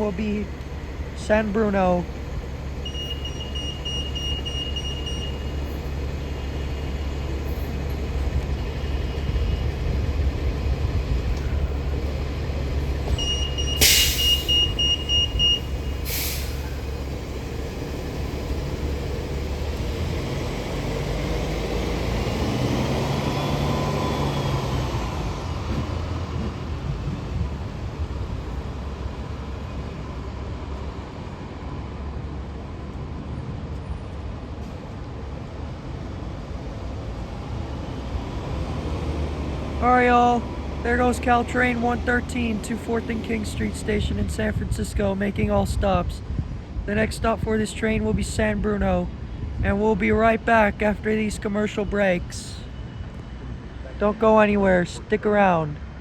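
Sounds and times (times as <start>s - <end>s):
electric train pulling out: 0.0s - 31.2s
high steady beep: 2.8s - 5.7s, 13.1s - 16.0s
air hissing: 13.7s - 17.0s.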